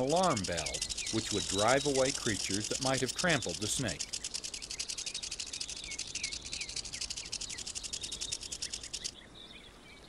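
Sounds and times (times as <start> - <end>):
rattlesnake tail rattle buzzing: 0.0 - 9.1
faint bird chirps: 0.0 - 10.0.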